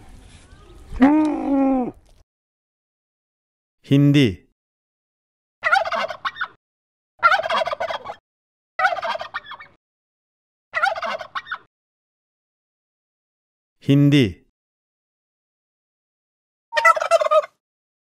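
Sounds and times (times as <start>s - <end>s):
turkeys gobbling: 5.6s - 6.6s, 7.2s - 8.2s, 8.8s - 9.8s, 10.8s - 11.7s, 16.7s - 17.6s.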